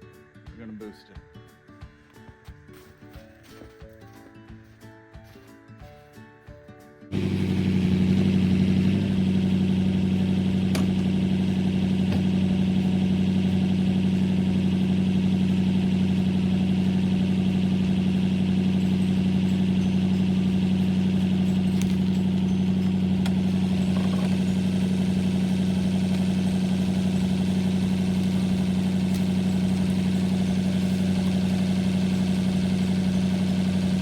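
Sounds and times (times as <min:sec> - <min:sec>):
vehicle engine idling: 0:07.1 - 0:34.0.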